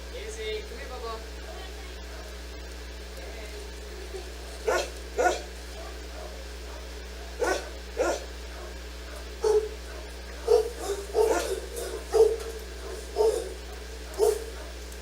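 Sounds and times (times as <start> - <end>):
steady low hum: 0.0 - 15.0
dog barking: 2.0 - 2.5, 4.6 - 15.0.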